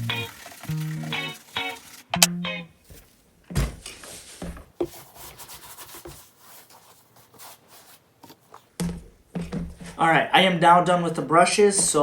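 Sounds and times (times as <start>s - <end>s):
brush scrubbing shoe sole: 4.8s - 8.0s.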